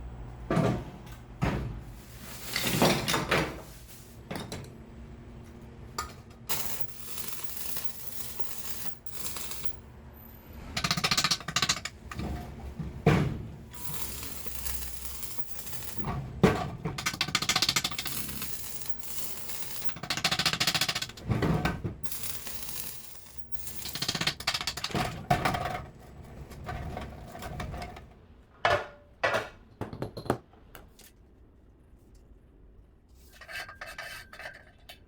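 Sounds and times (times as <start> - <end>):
metal parts clattering: 6.5 - 9.8, 13.7 - 21.2, 22.0 - 25.0
rapid mechanical clicking: 6.5 - 9.8, 13.7 - 16.2, 17.0 - 21.2, 22.0 - 25.0.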